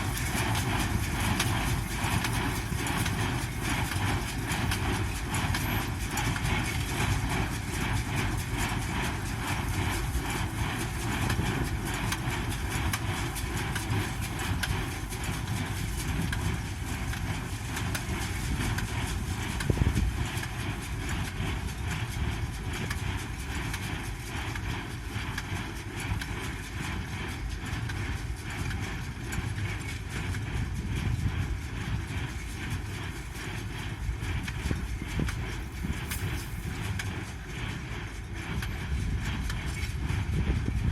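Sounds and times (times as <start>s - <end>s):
hay baler rhythmic knocking: 0.0s - 40.9s
tractor engine hum: 0.0s - 40.9s.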